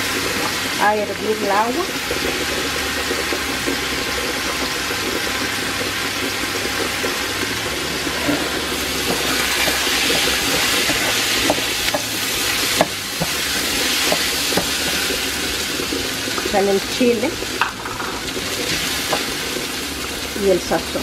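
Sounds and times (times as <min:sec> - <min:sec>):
food sizzling in oil: 0:00.0 - 0:21.0
wooden spoon knocking on pot: 0:14.0 - 0:15.1.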